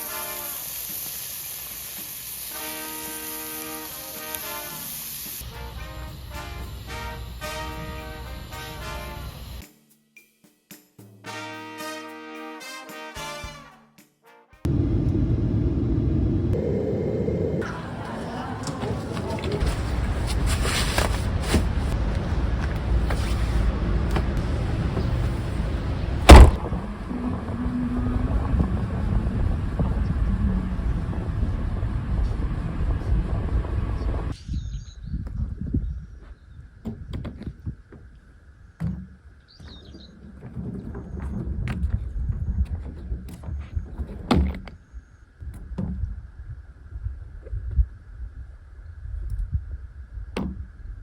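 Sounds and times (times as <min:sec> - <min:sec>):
faint low hum: 0:14.7 - 0:34.4
steady low rumble: 0:14.7 - 0:34.4
wind buffeting microphone: 0:14.7 - 0:37.9, 0:40.6 - 0:44.3, 0:45.4 - 0:51.0
sharp loud knock: 0:26.3 - 0:26.6.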